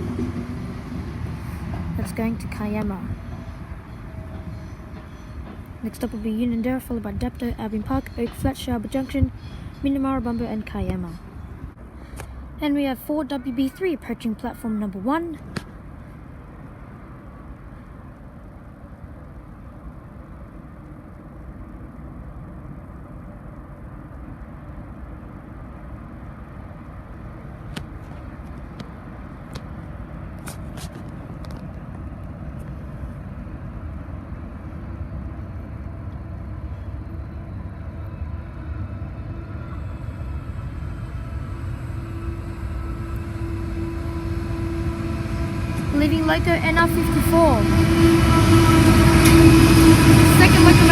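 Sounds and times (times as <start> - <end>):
freight train rumble: 0.0 - 50.9
locomotive engine note: 34.9 - 50.9.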